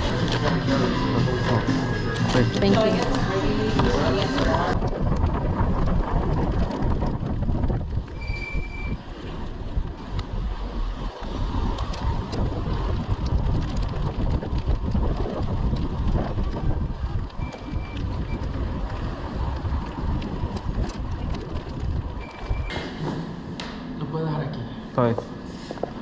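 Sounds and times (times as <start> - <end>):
wind buffeting the microphone: 3.6 - 22.7
short high beep: 8.2 - 9.0, 17.4 - 18.4, 22.2 - 22.7.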